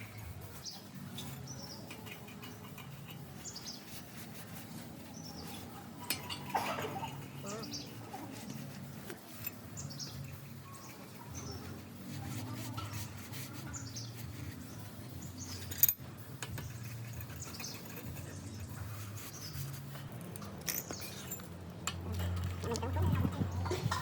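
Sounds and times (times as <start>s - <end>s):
birds chirping: 0.0s - 12.0s, 12.7s - 15.8s, 16.4s - 20.1s.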